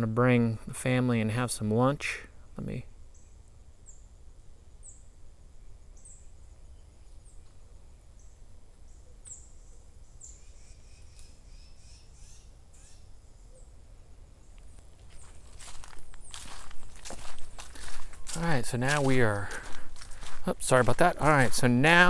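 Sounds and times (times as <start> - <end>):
bird chirping: 5.9 - 7.5, 8.2 - 13.8
steady low rumble: 15.4 - 22.0.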